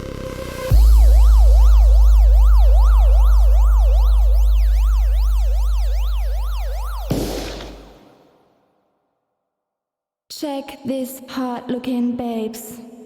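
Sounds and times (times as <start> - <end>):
deep sub-bass drone: 0.0 - 7.2
siren-like wavering tone: 0.6 - 7.2.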